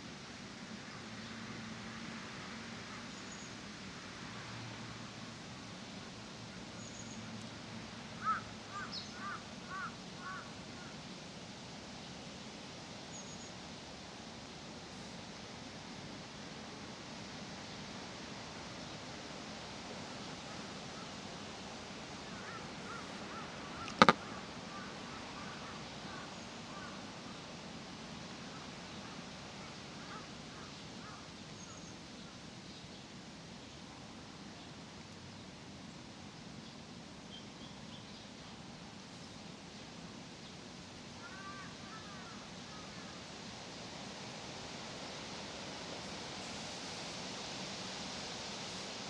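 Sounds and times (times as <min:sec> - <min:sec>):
outdoor park ambience: 0:00.0 - 0:49.0
crow cawing: 0:08.2 - 0:10.9, 0:22.3 - 0:26.9, 0:41.2 - 0:43.1
faint short bird calls: 0:22.2 - 0:27.0
sharp double click: 0:23.8 - 0:24.2.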